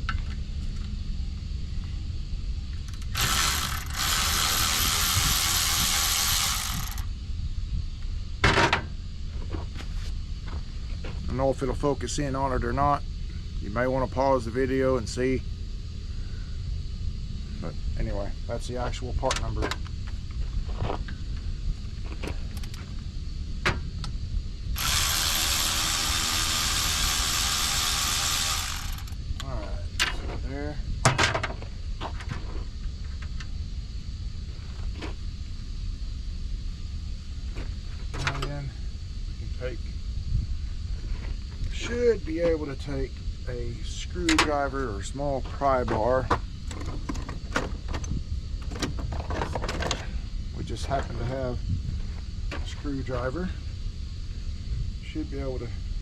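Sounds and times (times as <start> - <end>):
low steady rumble: 0.0 - 56.0
mechanical whirring hiss: 2.8 - 7.2, 24.6 - 29.8
ratchet wrench clicking: 2.9 - 7.1, 24.8 - 29.2.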